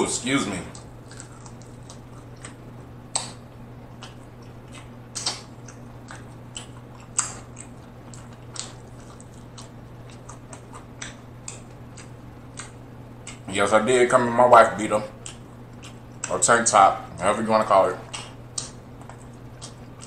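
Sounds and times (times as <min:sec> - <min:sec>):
wet chewing with mouth clicks: 0:00.7 - 0:13.5, 0:15.1 - 0:16.4, 0:18.0 - 0:20.0.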